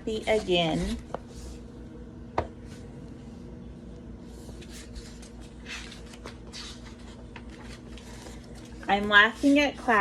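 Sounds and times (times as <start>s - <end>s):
faint electrical hum: 0.0s - 10.0s
paper pages rustling: 4.5s - 9.8s.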